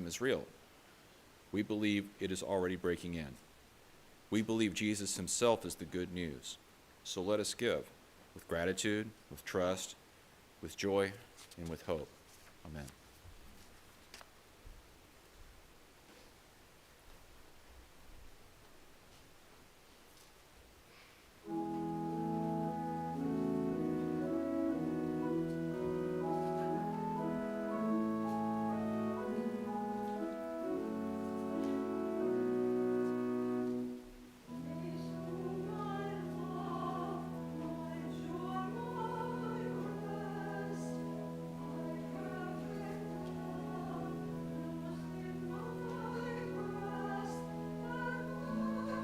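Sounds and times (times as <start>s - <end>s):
organ chords: 21.4s - 49.0s
voices singing: 34.5s - 49.0s.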